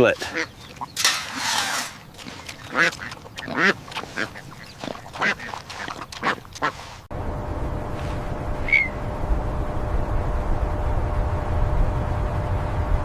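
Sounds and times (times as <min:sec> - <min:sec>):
low rumbling noise: 0:07.1 - 0:13.0.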